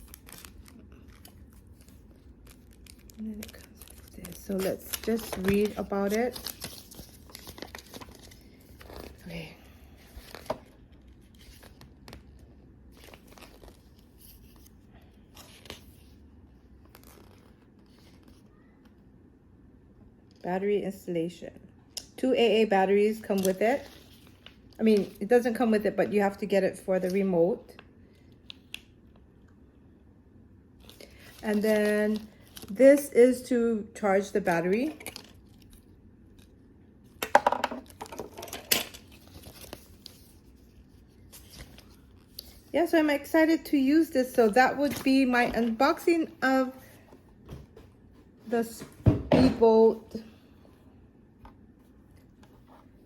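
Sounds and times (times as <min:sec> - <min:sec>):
paper rustling: 0:00.0 - 0:09.3, 0:10.0 - 0:16.2, 0:23.2 - 0:25.2, 0:37.9 - 0:42.7
low steady hum: 0:00.0 - 0:53.0.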